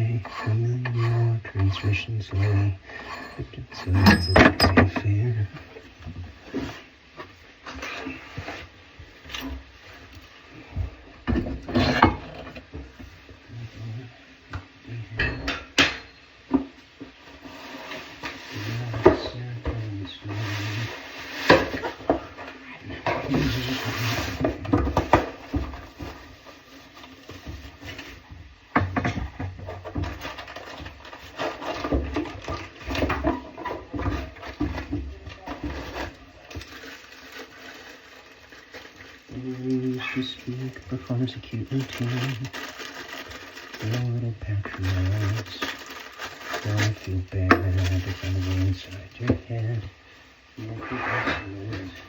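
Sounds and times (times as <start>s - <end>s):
plumbing tools knocking and clinking: 3.2s - 5.2s, 15.2s - 17.2s
hand tools clicking and knocking: 4.0s - 5.0s
scraping and rubbing: 17.1s - 28.6s, 29.2s - 52.0s.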